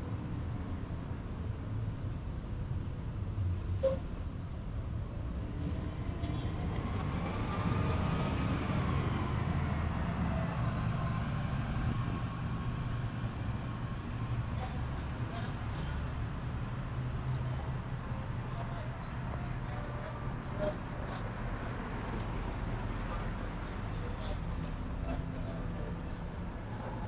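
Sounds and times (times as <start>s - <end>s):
low traffic rumble: 0.0s - 27.0s.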